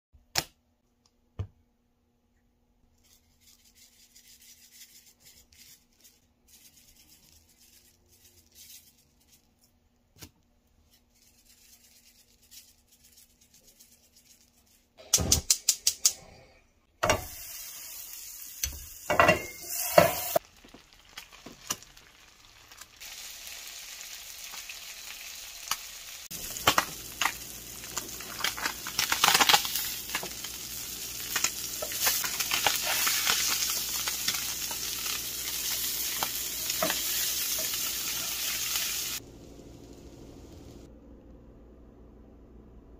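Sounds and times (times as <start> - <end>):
fish sizzling in a pan: 17.0 - 39.2
spatula scraping a pan: 19.1 - 20.4.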